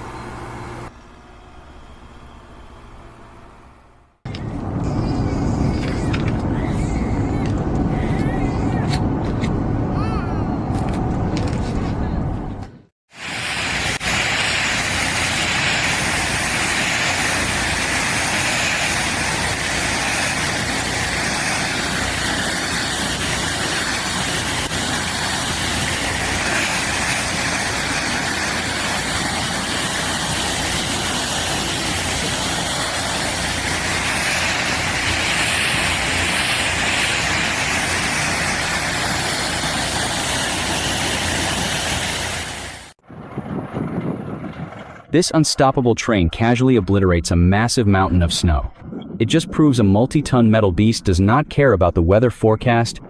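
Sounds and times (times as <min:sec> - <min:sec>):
snow-clearing machine engine: 0:00.0 - 0:03.7, 0:13.2 - 0:43.0.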